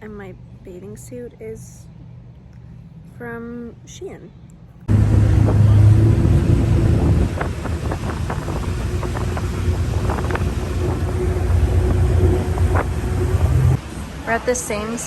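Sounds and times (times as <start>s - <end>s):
engine low drone: 4.7s - 15.0s
wind buffeting microphone: 4.9s - 13.8s.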